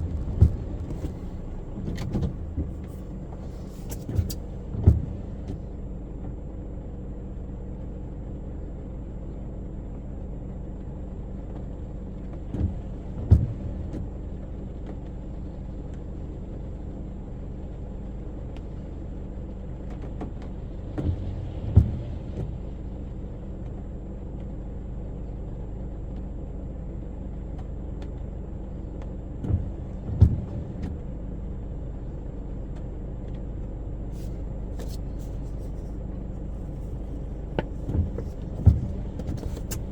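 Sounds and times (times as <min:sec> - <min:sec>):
windscreen wipers knocking: 0:00.0 - 0:05.7, 0:12.3 - 0:14.3, 0:19.9 - 0:22.8, 0:29.0 - 0:31.2, 0:34.2 - 0:39.9
car engine hum: 0:00.0 - 0:06.2, 0:28.7 - 0:39.9
road noise inside car: 0:00.0 - 0:39.9.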